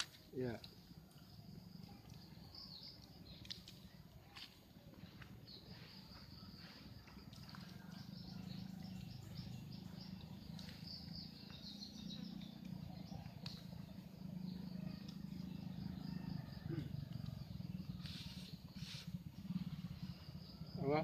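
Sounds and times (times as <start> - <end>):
steady low hum: 0.1 - 20.8.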